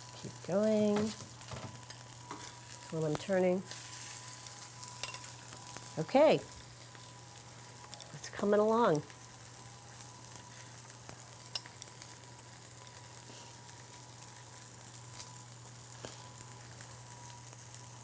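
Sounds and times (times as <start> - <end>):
cutlets sizzling in oil: 0.0 - 18.0.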